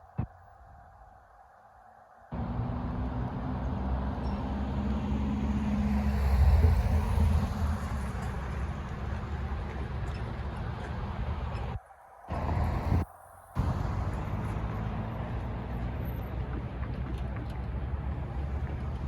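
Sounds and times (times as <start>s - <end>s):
freight train passing: 2.4s - 16.6s.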